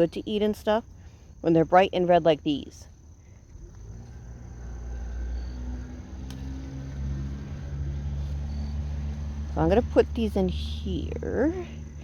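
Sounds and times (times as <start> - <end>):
low engine hum: 2.9 - 12.0.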